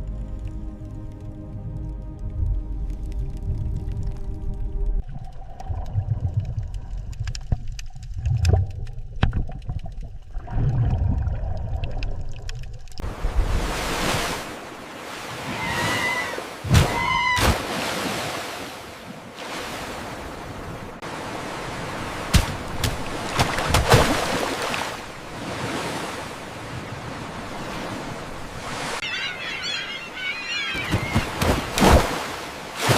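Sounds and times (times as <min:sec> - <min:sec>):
underwater rumble: 0:00.0 - 0:13.7
underwater clicks: 0:00.4 - 0:13.0
water washing: 0:21.2 - 0:32.9
short pitched calls: 0:29.0 - 0:31.6.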